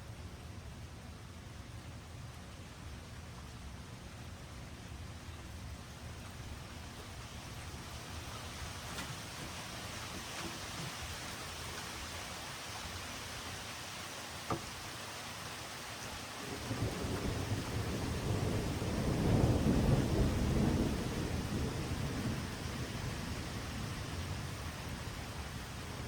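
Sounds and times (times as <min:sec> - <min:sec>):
steady rain: 0:00.0 - 0:26.0
low rumble of thunder: 0:16.3 - 0:26.0.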